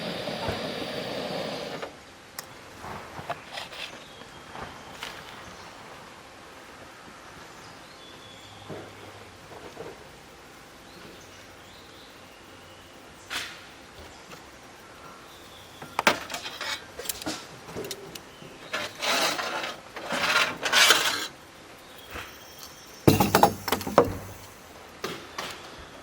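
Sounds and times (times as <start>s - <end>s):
objects clicking and clinking: 22.0s - 24.6s
heavy knock with clatter: 23.1s - 24.6s.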